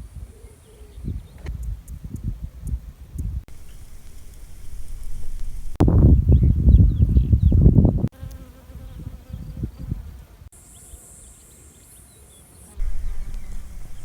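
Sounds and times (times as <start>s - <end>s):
steady high hiss: 3.5s - 5.8s, 12.6s - 14.0s
insect buzzing: 3.5s - 5.9s, 8.1s - 12.0s, 12.6s - 14.0s
faint bird chirps: 10.6s - 14.0s.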